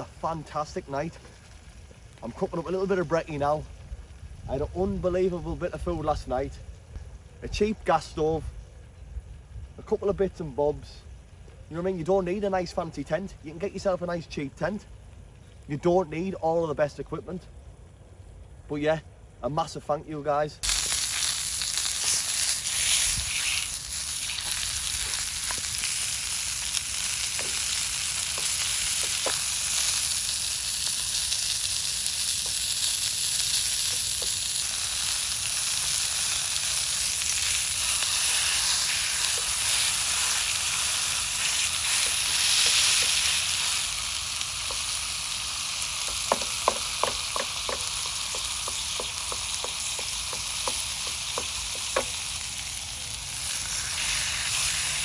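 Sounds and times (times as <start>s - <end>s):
food sizzling in a pan: 20.6s - 55.0s.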